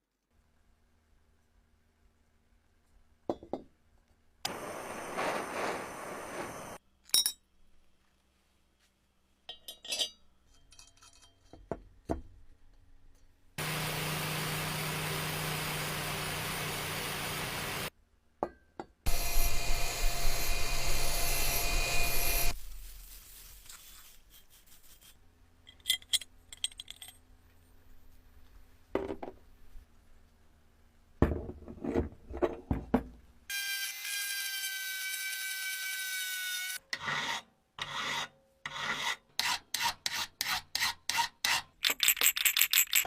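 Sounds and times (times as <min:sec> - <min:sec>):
power tool running: 0:13.6 - 0:17.9, 0:19.1 - 0:22.6
rough loud power tool: 0:13.6 - 0:17.9, 0:19.1 - 0:22.6
metal parts clinking: 0:25.7 - 0:27.2, 0:41.8 - 0:43.0.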